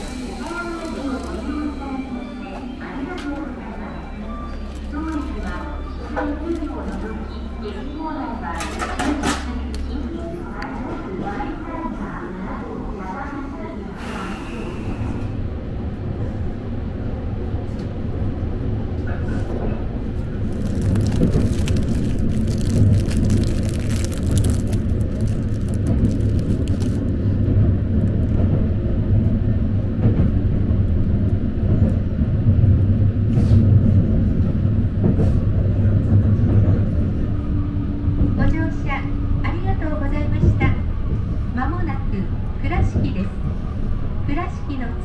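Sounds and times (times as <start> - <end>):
train rumbling on rails: 0.0 - 45.0.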